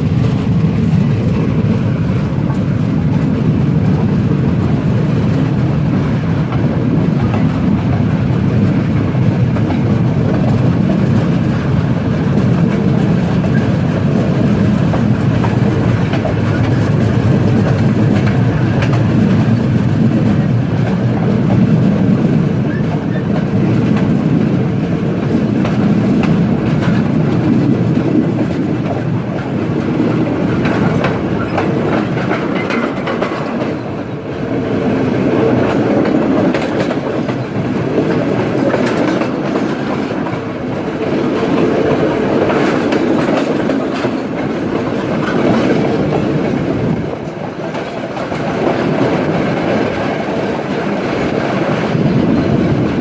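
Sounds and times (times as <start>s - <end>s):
train rolling rumble: 0.0s - 53.0s
wheels clattering over rail joints: 25.2s - 34.0s, 35.3s - 53.0s.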